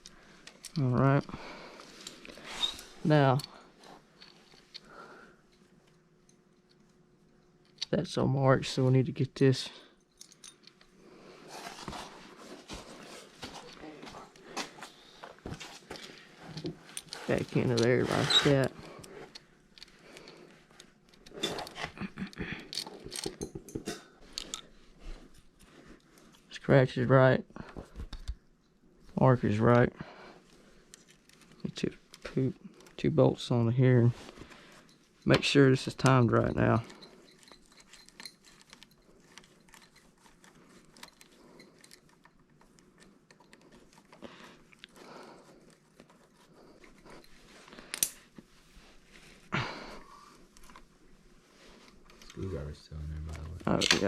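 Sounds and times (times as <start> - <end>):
hand tools clicking and tapping: 22.5 - 24.6.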